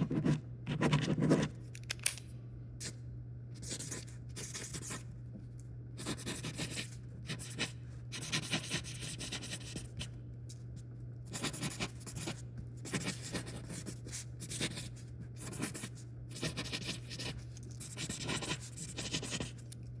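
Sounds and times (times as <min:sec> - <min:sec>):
pen scratching on paper: 0:00.0 - 0:01.6, 0:03.6 - 0:05.1, 0:06.0 - 0:10.1, 0:11.3 - 0:19.6.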